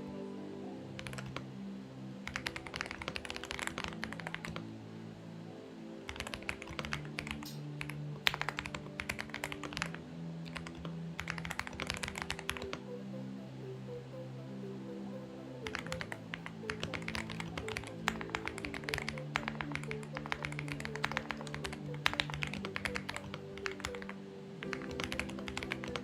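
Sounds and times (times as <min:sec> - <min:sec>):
soft background music: 0:00.0 - 0:26.0
mechanical keyboard typing: 0:01.0 - 0:01.4, 0:02.2 - 0:04.6, 0:06.1 - 0:12.8, 0:15.7 - 0:26.0.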